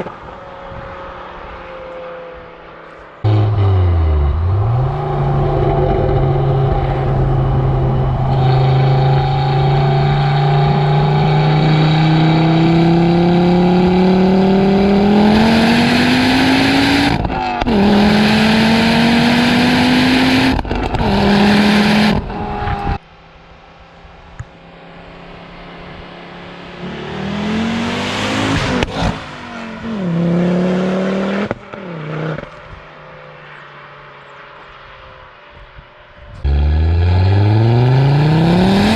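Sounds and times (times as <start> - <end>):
car engine accelerating hard: 3.2 - 23.0, 36.4 - 38.9
engine revving: 3.2 - 23.0, 36.4 - 38.9.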